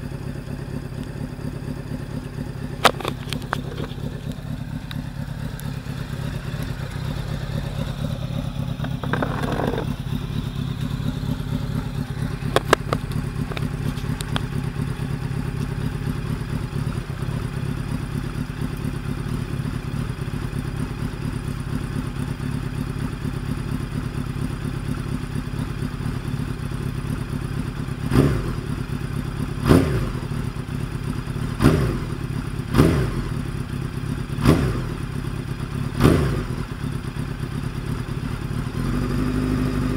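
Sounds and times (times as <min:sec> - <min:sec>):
motorcycle engine idling: 0:00.0 - 0:39.9
quick throttle revs: 0:36.0 - 0:36.6.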